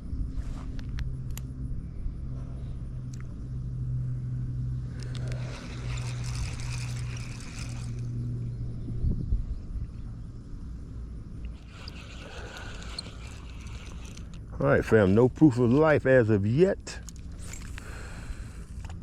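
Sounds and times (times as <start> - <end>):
low motor hum: 0.0 - 19.0
faint clicks: 11.4 - 14.5.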